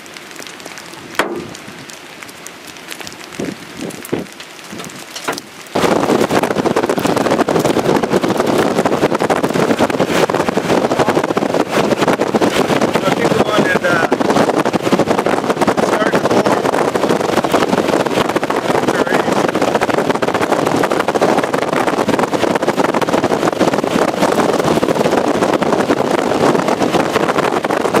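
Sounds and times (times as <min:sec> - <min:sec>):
heavy rain on a vehicle: 0:00.0 - 0:28.0.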